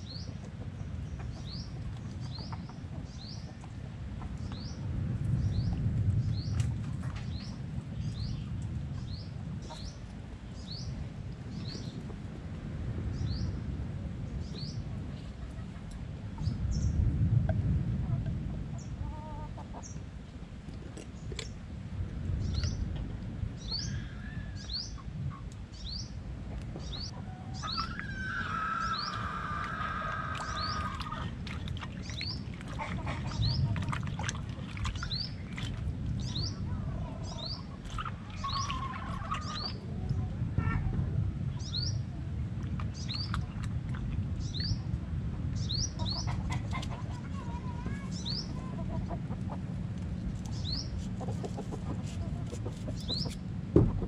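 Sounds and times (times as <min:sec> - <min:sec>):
small birds chirping: 0:00.0 - 0:12.2, 0:26.8 - 0:40.3, 0:42.8 - 0:43.7, 0:44.4 - 0:49.6, 0:50.4 - 0:53.4
low rumble: 0:03.2 - 0:19.1.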